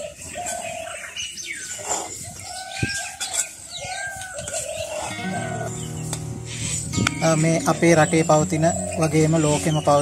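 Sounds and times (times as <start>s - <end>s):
bird calls: 0.0s - 10.0s.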